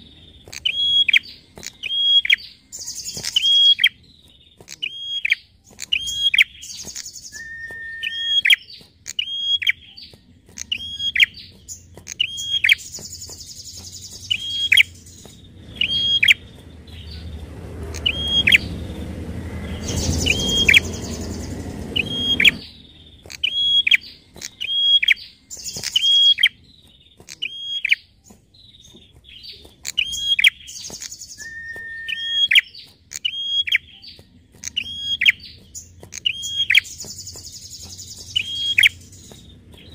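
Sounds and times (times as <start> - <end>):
bird chirping: 0.0 - 39.9
buzzy bird notes: 0.0 - 39.9
low rumbling noise: 13.6 - 23.3.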